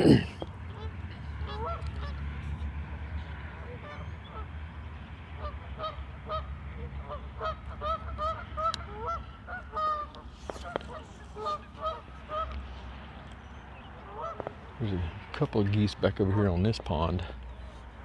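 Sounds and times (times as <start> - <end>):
geese honking: 0.7 - 2.2, 3.6 - 4.5, 5.4 - 12.7, 14.0 - 14.8.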